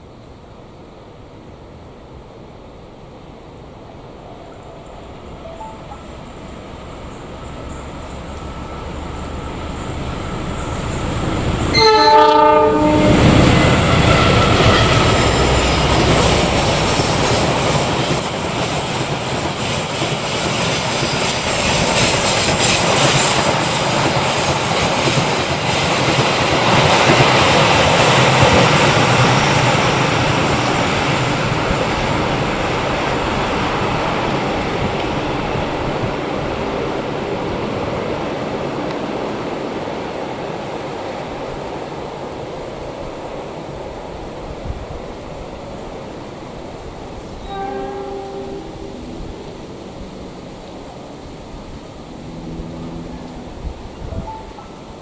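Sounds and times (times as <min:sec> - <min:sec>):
train passing with rumble: 0:00.0 - 0:55.0
train horn blast: 0:11.7 - 0:13.7, 0:47.4 - 0:54.8.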